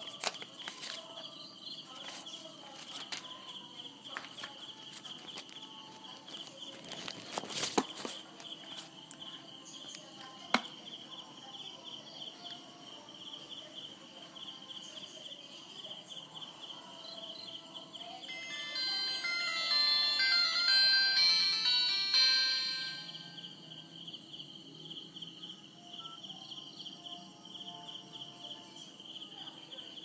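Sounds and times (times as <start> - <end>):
electronic tune: 18.3 - 23.5
insect chirping: 22.9 - 30.0.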